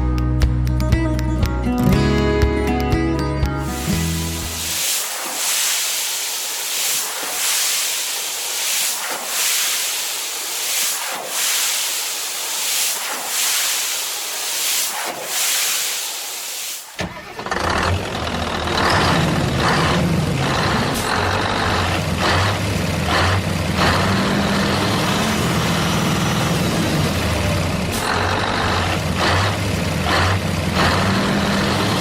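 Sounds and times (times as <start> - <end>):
loud hiss: 3.6 - 17.3.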